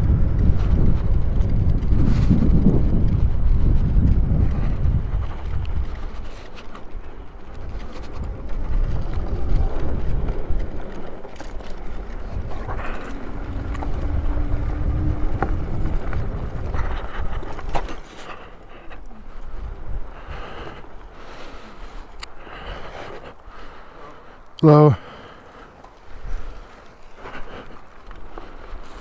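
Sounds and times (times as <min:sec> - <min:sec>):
wind buffeting microphone: 0:00.0 - 0:24.6, 0:26.0 - 0:29.0
tyres on dirt trail: 0:00.0 - 0:29.0
low motor whine: 0:12.0 - 0:17.1.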